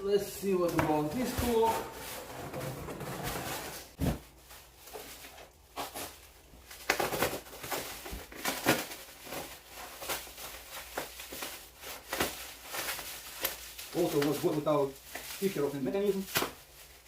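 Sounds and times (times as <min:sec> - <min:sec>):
box being unpacked: 0:04.9 - 0:15.5.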